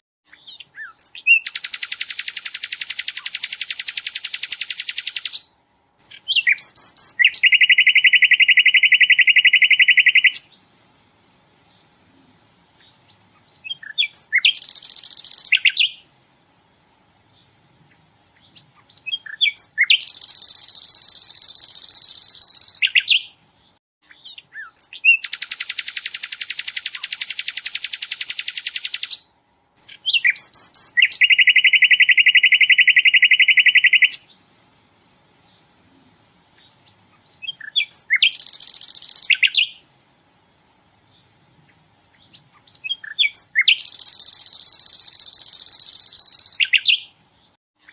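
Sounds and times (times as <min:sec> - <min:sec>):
songbird chips and rattling trill: 0:00.4 - 0:10.5, 0:12.8 - 0:16.0, 0:18.4 - 0:23.3, 0:24.2 - 0:34.3, 0:36.6 - 0:39.8, 0:42.2 - 0:47.1.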